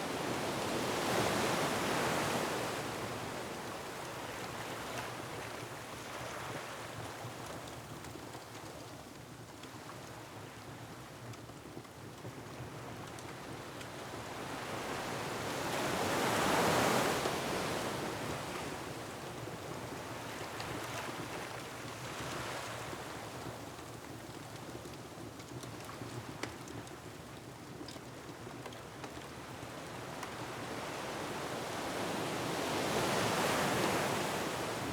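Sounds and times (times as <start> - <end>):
wind: 0.0 - 34.9
ocean surf: 31.0 - 34.9.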